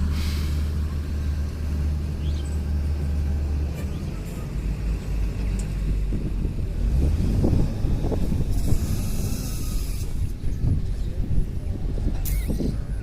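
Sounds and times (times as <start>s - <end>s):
heavy diesel engine rumbling: 0.0s - 13.0s
hiss: 0.1s - 0.7s.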